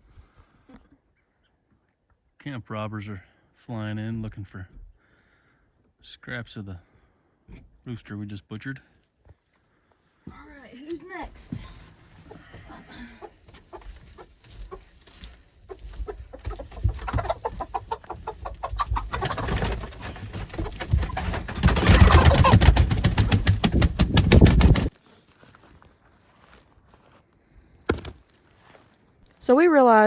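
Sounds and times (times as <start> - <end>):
chicken flapping wings: 15.6 - 24.9.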